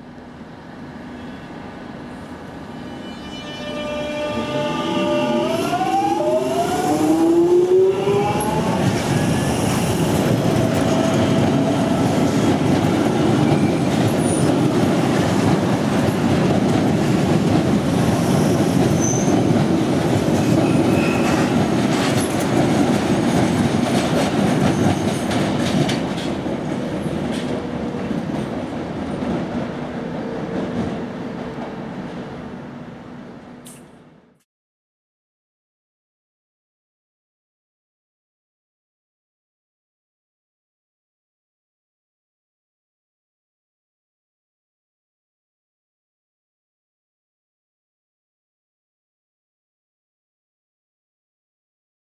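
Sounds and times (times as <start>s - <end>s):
train passing on rails: 0.0s - 34.2s.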